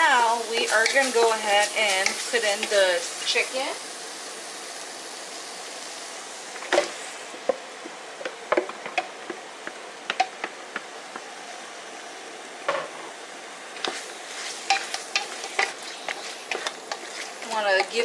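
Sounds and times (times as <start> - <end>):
chicken sizzling in oil: 0.0 - 18.0
utensil scraping a pot: 13.8 - 18.0.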